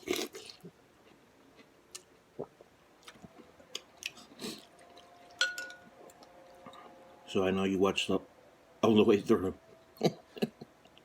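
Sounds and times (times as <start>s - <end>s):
close-miked chewing: 0.0s - 5.4s.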